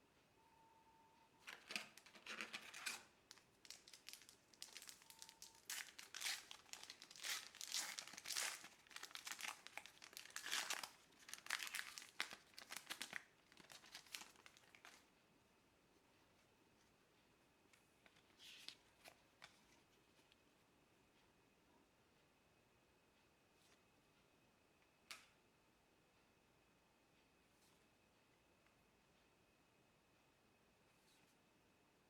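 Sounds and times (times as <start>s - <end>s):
plastic wrapper crinkling: 1.5s - 15.1s.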